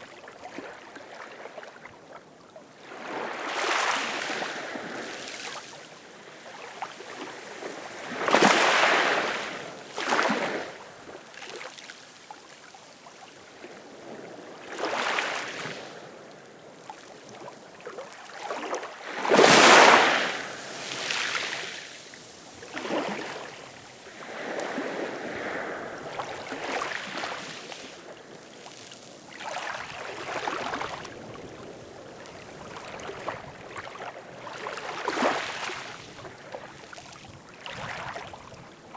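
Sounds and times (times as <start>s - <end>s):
ocean waves breaking: 18.6s - 31.5s.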